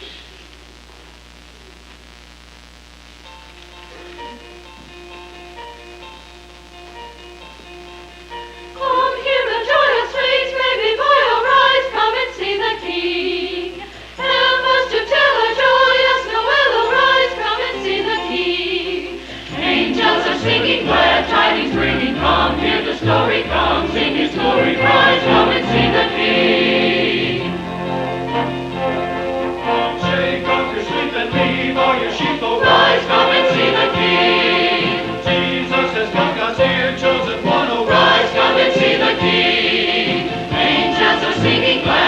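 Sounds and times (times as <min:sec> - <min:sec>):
soft held accompaniment: 0:03.2 - 0:42.0
choir singing: 0:08.8 - 0:42.0.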